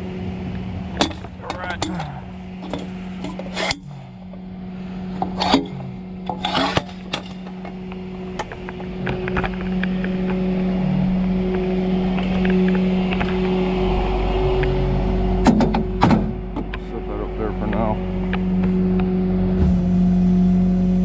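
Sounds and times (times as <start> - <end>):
tow truck engine humming: 0.0 - 21.0
scraping rasps of dragging: 4.8 - 7.6.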